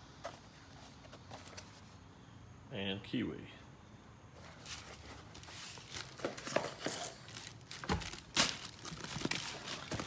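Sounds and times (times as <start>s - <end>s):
packaging crinkling and rustling: 4.4s - 10.0s.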